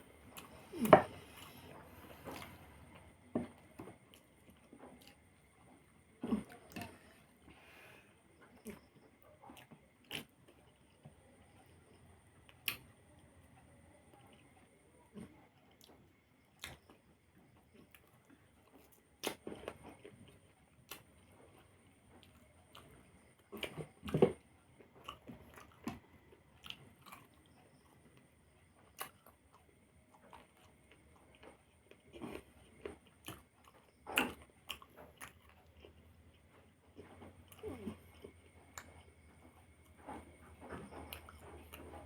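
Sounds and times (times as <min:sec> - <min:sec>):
person chewing and biting: 0:29.0 - 0:42.0.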